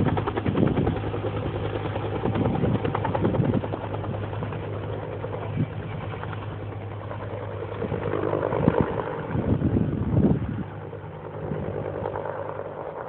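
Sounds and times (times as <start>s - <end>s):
helicopter engine and rotor hum: 0.0s - 13.0s.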